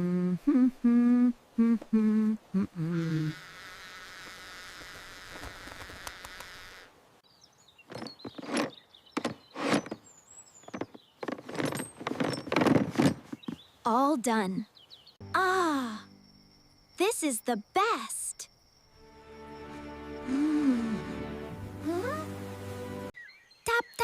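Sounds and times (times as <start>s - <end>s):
person humming: 0.0s - 3.4s, 20.2s - 22.3s.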